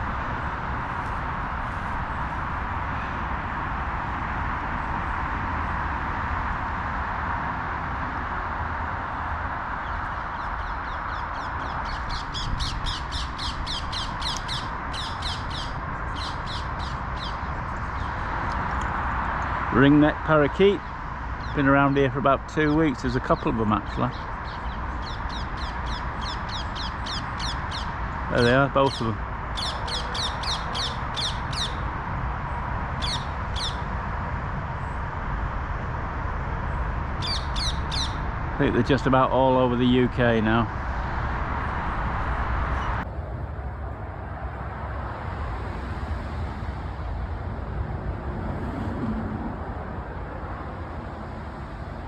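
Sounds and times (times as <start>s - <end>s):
parakeets screeching: 9.8s - 18.3s, 20.8s - 31.9s, 33.0s - 33.9s, 37.2s - 38.4s.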